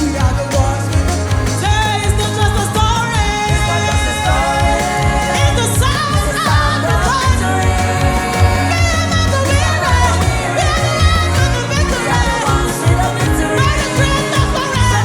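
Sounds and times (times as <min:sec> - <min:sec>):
song with singing over beat: 0:00.0 - 0:15.0.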